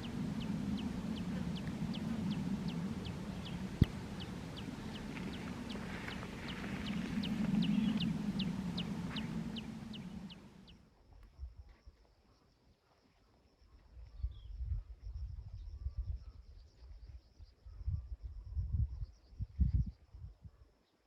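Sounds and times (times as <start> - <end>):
faint high whine: 0.0 - 10.7
low rumble: 0.0 - 10.7.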